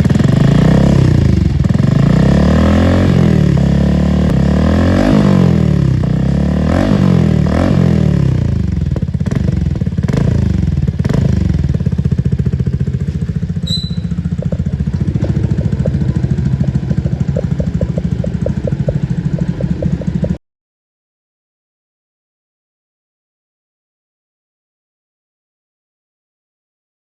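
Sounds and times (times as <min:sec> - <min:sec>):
motorcycle engine revving and idling: 0:00.0 - 0:20.4.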